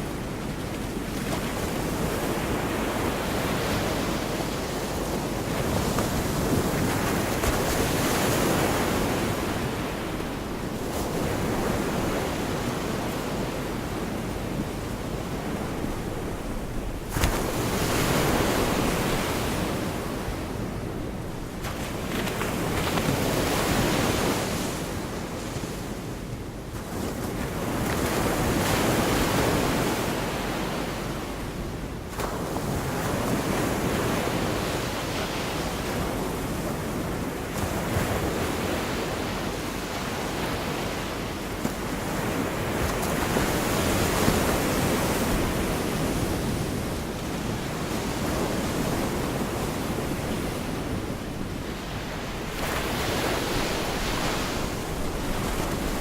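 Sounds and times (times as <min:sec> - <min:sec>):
waves breaking on beach: 0:00.0 - 0:56.0
wind on microphone: 0:40.2 - 0:56.0.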